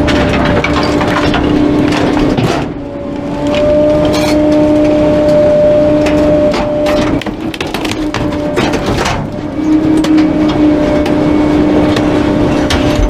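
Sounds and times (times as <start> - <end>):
bulky items cracking and breaking: 0.0 - 2.8, 6.9 - 10.2
hydraulic compactor whine: 0.0 - 13.0.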